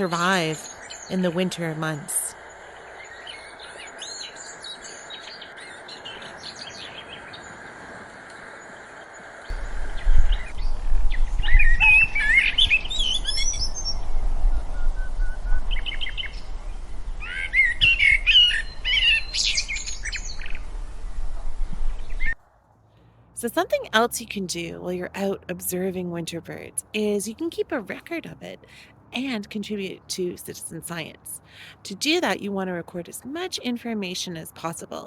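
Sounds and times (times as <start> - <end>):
small birds chirping: 0.0 - 14.1, 15.5 - 20.6
low rumble: 9.5 - 22.4.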